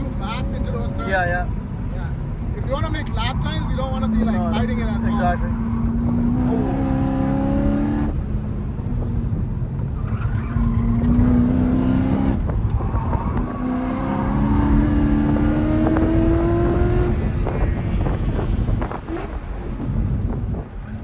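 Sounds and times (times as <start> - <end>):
car engine revving under load: 0.0 - 21.0
crackling exhaust rumble: 5.8 - 21.0.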